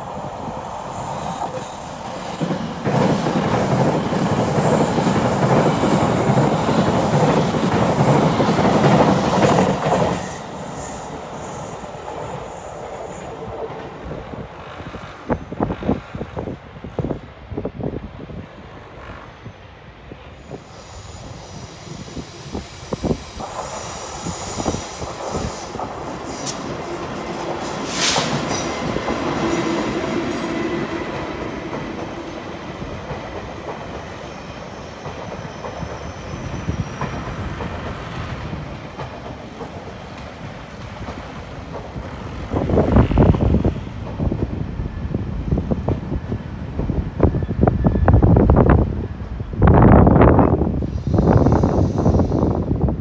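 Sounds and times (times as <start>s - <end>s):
high squeal of train: 0.0s - 53.0s
train wheels clattering on rails: 2.5s - 17.1s, 21.9s - 48.5s.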